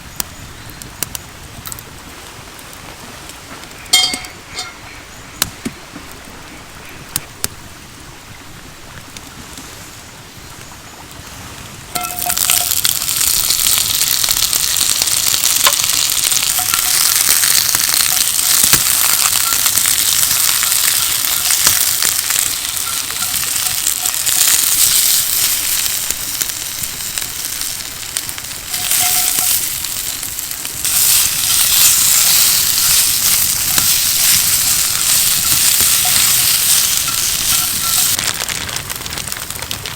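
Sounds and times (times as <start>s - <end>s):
light clinks: 3.9s - 4.8s
food sizzling in a hot pan: 11.9s - 38.3s.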